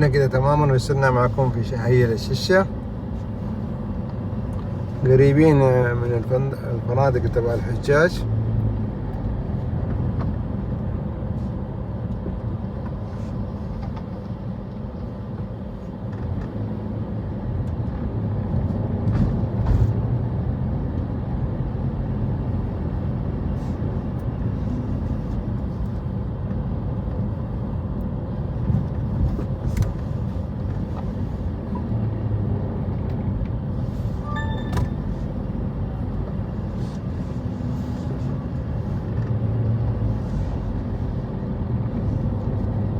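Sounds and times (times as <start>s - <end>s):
car driving rumble: 0.0s - 42.9s
short high beep: 34.2s - 35.2s.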